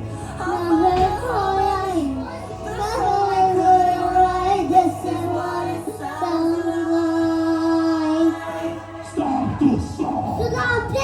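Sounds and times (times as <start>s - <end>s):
child singing held notes: 0.4s - 8.4s.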